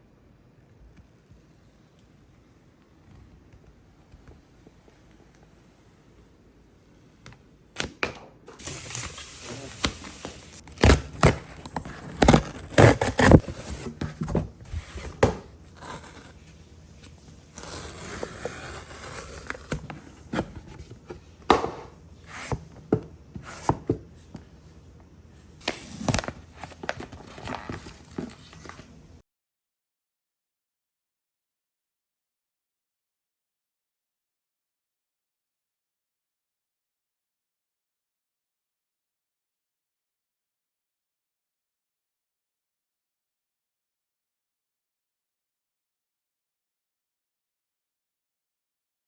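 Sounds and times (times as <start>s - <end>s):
paper tearing and crinkling: 8.5s - 16.4s, 17.4s - 20.4s, 25.6s - 28.9s
knocks and scrapes of handling: 8.5s - 24.6s, 25.6s - 28.9s.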